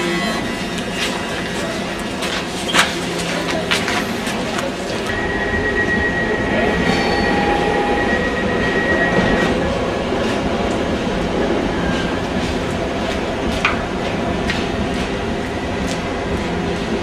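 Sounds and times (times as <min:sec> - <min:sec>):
high steady whine: 0:00.0 - 0:10.2
electric train rumble: 0:00.0 - 0:17.0
lower whine: 0:04.4 - 0:12.7.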